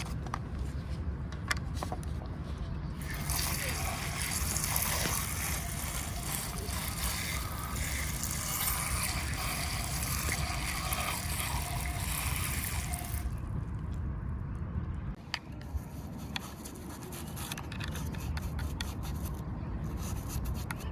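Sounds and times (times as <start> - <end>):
water spraying: 3.0 - 13.4.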